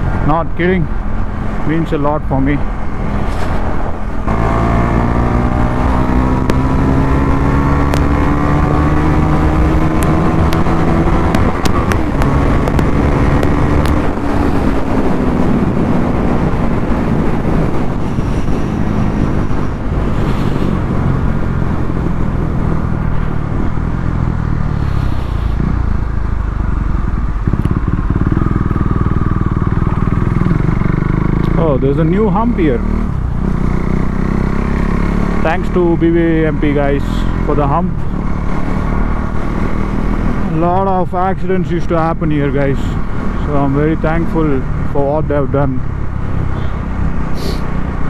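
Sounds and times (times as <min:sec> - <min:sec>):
motorcycle engine accelerating: 0:00.0 - 0:48.0.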